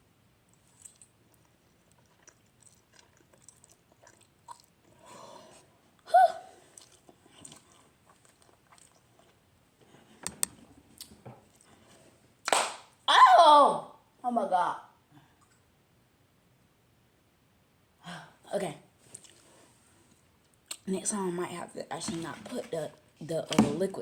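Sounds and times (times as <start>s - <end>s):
person chewing and slurping noodles: 0.5s - 5.6s, 6.6s - 10.2s.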